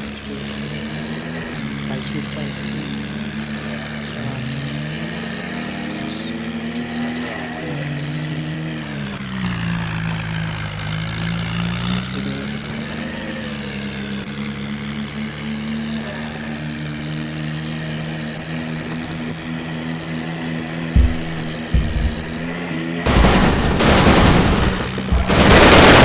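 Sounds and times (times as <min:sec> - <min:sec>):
tractor engine running: 0:00.0 - 0:26.0
short thumps: 0:20.9 - 0:23.7.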